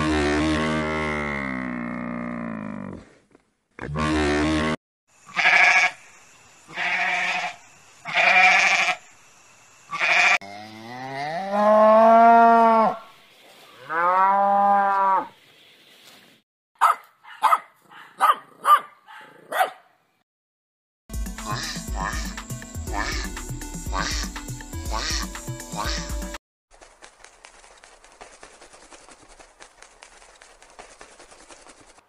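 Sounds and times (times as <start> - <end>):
livestock bleating: 5.3 - 6.0, 6.7 - 9.0, 9.9 - 13.0, 21.5 - 23.3, 23.9 - 24.3, 24.9 - 26.2.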